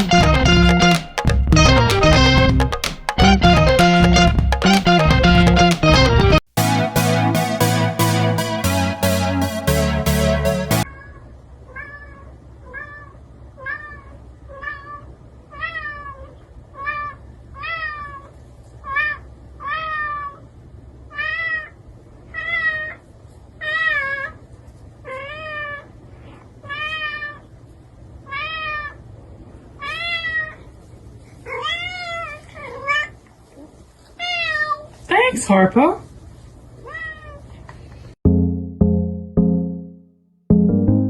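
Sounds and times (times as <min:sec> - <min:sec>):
cat meowing: 0:10.9 - 0:20.4, 0:21.1 - 0:23.0, 0:28.3 - 0:29.0, 0:29.8 - 0:30.6, 0:36.8 - 0:37.5.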